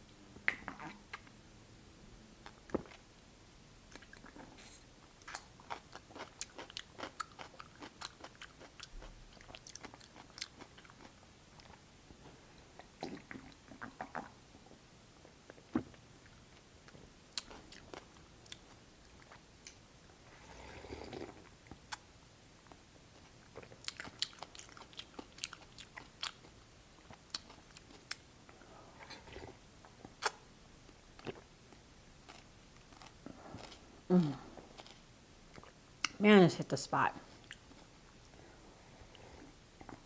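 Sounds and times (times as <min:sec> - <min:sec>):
wet chewing: 0:05.2 - 0:11.8, 0:23.2 - 0:28.2
person humming: 0:34.1 - 0:34.5.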